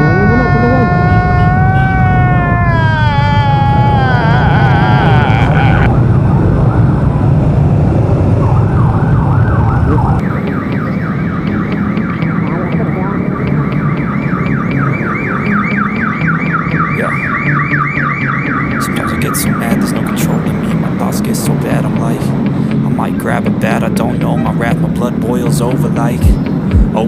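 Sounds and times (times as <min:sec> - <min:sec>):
low rumble of traffic engines: 0:00.0 - 0:27.0
electronic alarm rising sweeps: 0:05.8 - 0:20.4.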